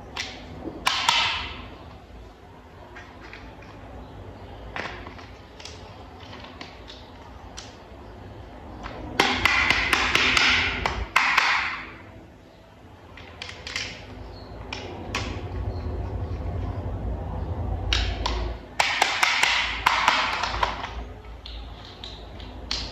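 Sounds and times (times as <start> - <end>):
plastic toy parts clicking: 13.2 - 14.0.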